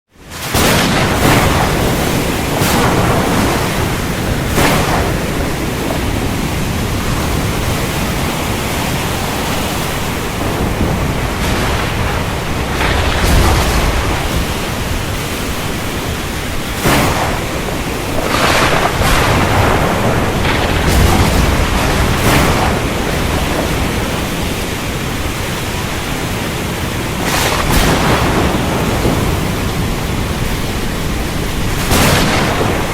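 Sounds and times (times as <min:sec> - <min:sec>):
heavy rain: 0:00.1 - 0:32.9
thunder cracking: 0:00.3 - 0:32.9.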